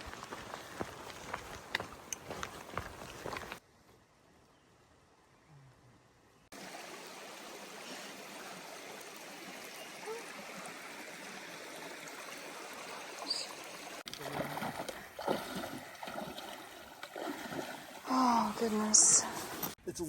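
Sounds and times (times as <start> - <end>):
stream water running: 0.0 - 3.6, 6.5 - 19.8.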